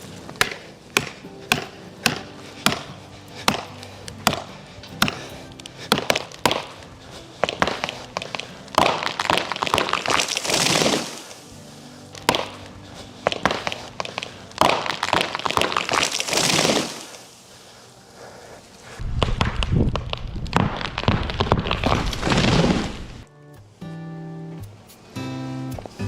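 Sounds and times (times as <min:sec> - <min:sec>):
background music: 0:00.0 - 0:16.4, 0:23.3 - 0:26.0
sharp blows on wood: 0:00.4 - 0:11.2, 0:12.2 - 0:16.9.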